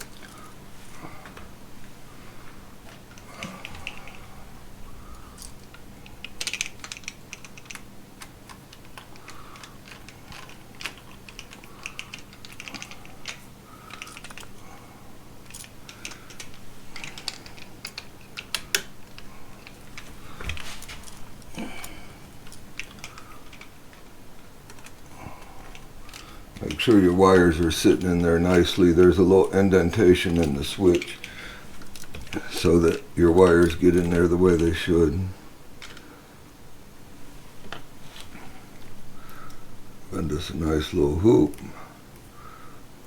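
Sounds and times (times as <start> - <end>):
faint steady hum: 0.0 - 43.0
hand tools clicking on wire: 5.1 - 14.7, 15.4 - 35.1.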